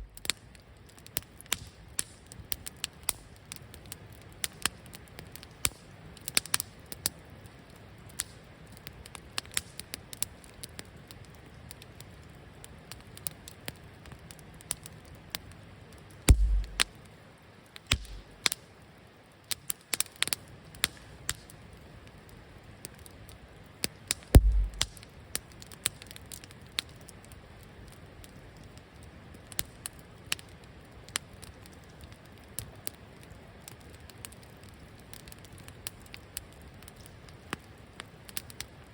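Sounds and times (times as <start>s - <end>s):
campfire crackling and popping: 0.0s - 38.9s
low thumps: 16.3s - 16.8s, 17.9s - 18.2s, 24.4s - 24.9s.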